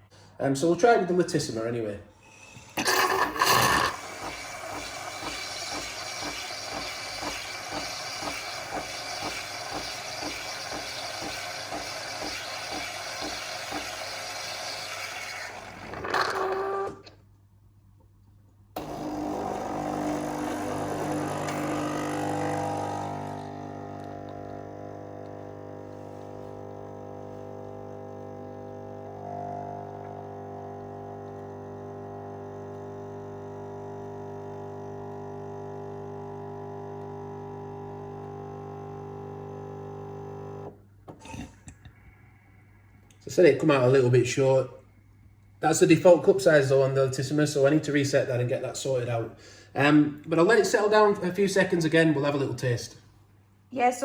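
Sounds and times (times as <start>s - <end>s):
coffee machine frothing milk: 2.4s - 17.1s, 18.8s - 41.6s
coffee machine pump hum: 2.5s - 17.1s, 18.8s - 43.2s.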